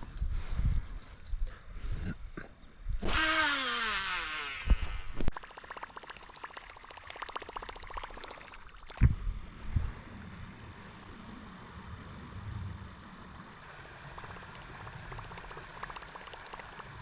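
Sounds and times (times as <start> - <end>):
fishing reel whirring: 3.0 - 8.9.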